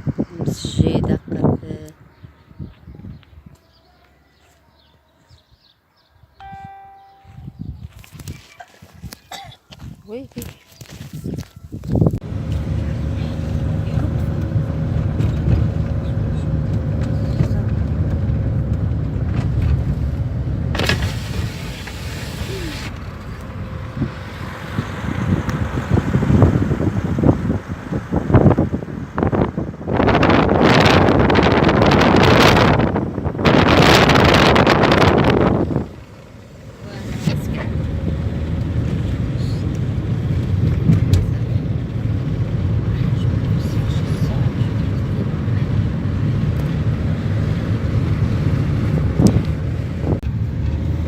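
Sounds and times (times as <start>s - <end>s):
wind buffeting microphone: 0.0s - 3.6s, 6.4s - 36.2s, 36.9s - 51.0s
car road rumble: 11.1s - 51.0s
rushing hiss: 20.9s - 23.0s.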